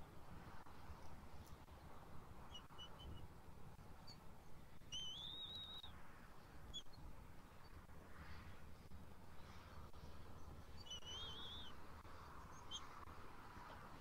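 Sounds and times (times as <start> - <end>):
faint bird chirps: 2.4 - 3.3, 4.8 - 6.0, 6.6 - 7.8, 8.4 - 13.1
thin whistled bird call: 2.5 - 3.3, 4.9 - 6.0, 10.7 - 11.8, 12.4 - 12.9.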